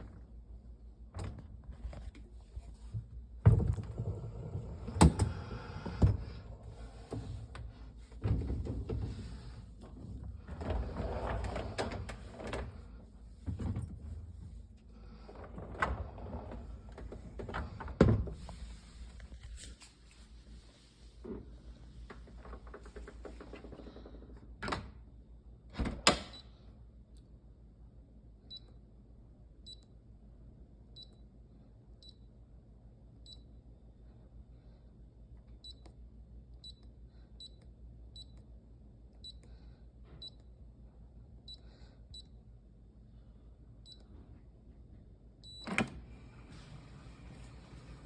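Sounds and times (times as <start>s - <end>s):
dishwasher humming: 2.3s - 14.4s, 45.6s - 48.0s.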